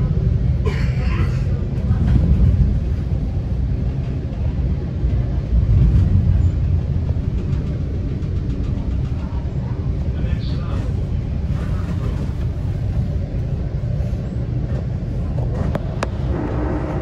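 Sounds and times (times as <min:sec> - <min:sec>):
train low rumble: 0:00.0 - 0:17.0.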